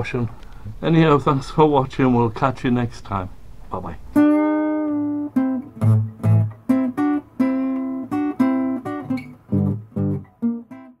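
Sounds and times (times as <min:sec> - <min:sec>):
guitar picking a melody: 0:04.1 - 0:11.0.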